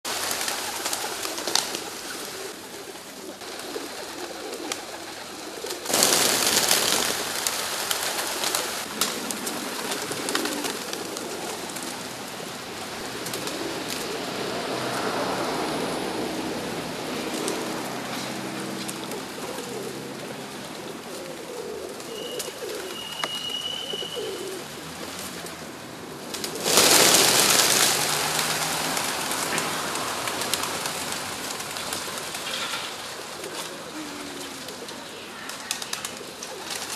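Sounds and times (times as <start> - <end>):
pigeons cooing: 0.1 - 36.9
loud rushes of noise: 5.9 - 19.8, 23.9 - 33.3.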